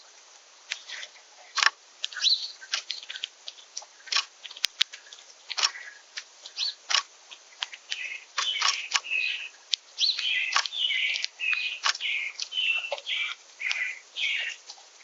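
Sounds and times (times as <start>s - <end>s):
small songbirds chirping: 0.0s - 15.0s
sharp clicks and taps: 9.7s - 13.8s.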